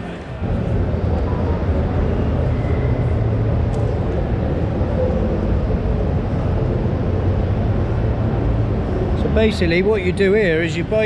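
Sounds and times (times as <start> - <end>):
distant voices hubbub: 0.0 - 11.0
low rumble of hall: 0.0 - 11.0.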